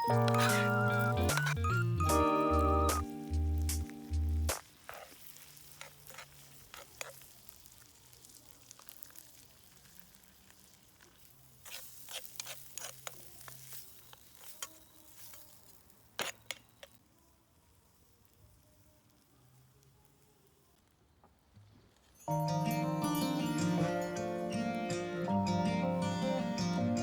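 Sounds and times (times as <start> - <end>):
fire pops and crackles: 0.0 - 1.8, 2.5 - 17.0
steak sizzling over fire: 0.0 - 21.1.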